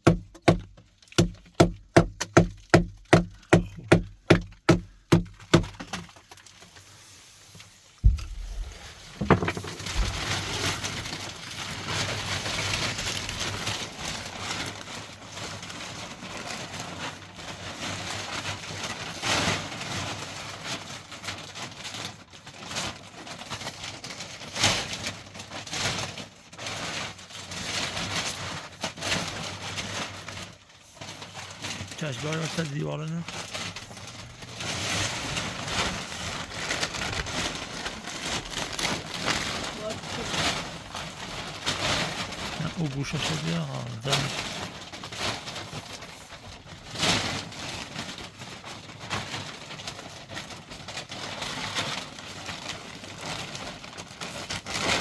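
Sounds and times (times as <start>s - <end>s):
irregular scraping and rustling: 5.5s - 15.0s, 15.8s - 43.4s
single thump: 8.0s - 10.3s.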